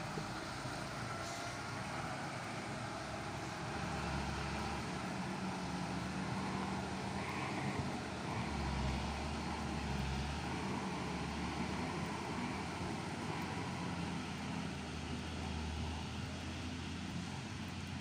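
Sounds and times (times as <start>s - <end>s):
diesel truck engine droning: 0.0s - 18.0s.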